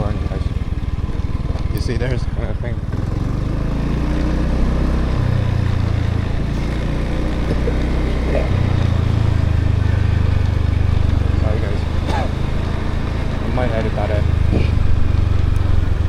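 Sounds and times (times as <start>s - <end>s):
motorbike engine running: 0.0s - 16.0s.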